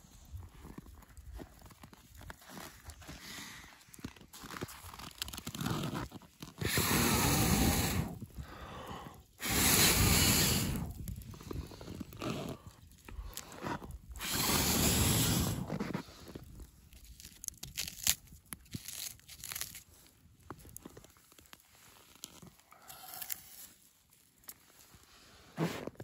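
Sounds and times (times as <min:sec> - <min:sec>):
person blowing on fire: 0:06.6 - 0:16.5, 0:25.4 - 0:26.0.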